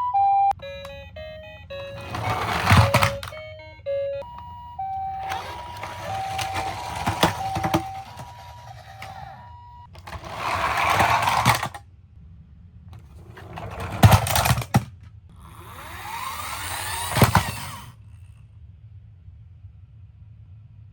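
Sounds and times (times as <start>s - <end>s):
toy electronic siren: 0.0s - 11.7s, 15.4s - 18.0s
toy wheels rattling down a slope: 1.9s - 3.4s, 5.2s - 9.4s, 10.0s - 11.8s, 13.0s - 18.0s.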